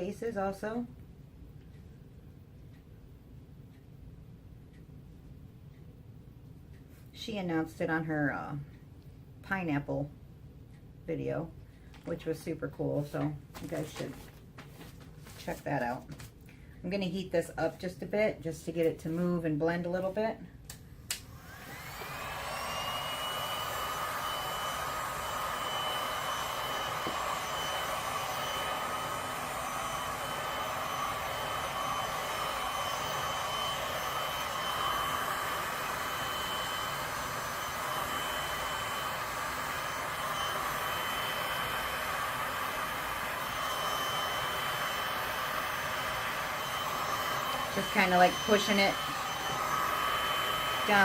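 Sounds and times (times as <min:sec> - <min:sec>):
heat gun blowing air: 0:21.2 - 0:51.0.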